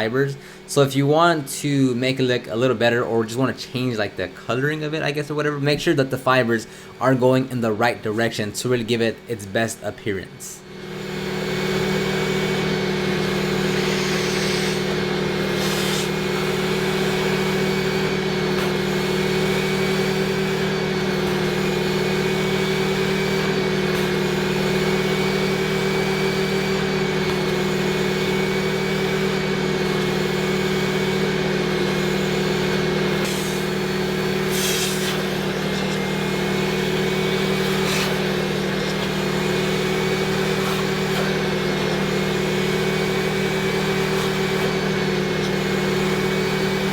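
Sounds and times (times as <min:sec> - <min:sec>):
vacuum motor whining: 0:10.6 - 0:46.9.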